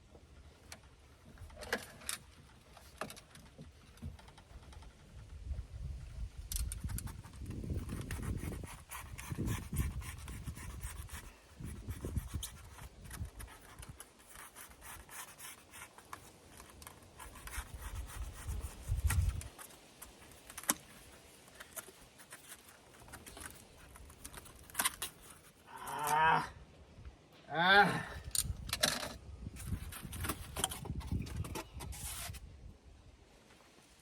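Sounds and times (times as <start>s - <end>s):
foam board rubbing and scraping: 7.1s - 25.7s, 29.6s - 32.4s.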